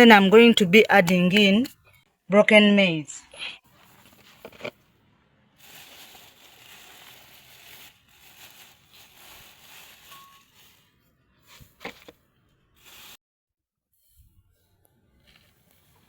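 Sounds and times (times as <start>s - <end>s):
dry grain pouring into a bowl: 5.6s - 10.8s.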